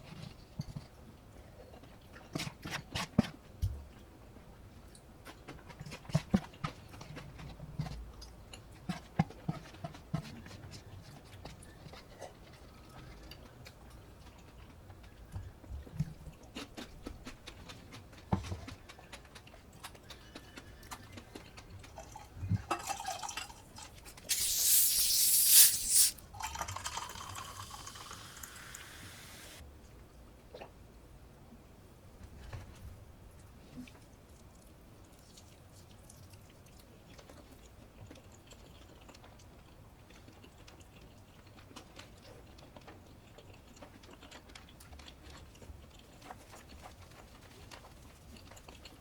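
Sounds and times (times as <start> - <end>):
soft chewing clicks: 4.8 - 22.2, 33.4 - 49.0
loud hiss: 24.3 - 26.2, 27.6 - 29.6
drink pouring into a cup: 24.3 - 29.6.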